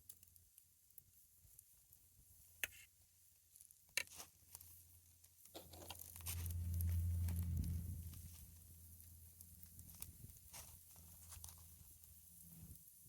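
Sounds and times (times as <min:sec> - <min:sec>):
campfire crackling and popping: 0:00.0 - 0:13.0
low rumble: 0:06.1 - 0:10.4.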